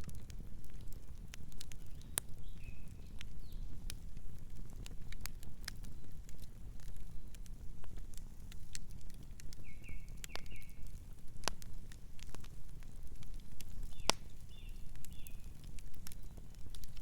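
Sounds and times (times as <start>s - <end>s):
campfire crackling and popping: 0.0s - 17.0s
night birds chirping: 1.8s - 3.8s, 9.5s - 11.0s, 13.8s - 16.5s.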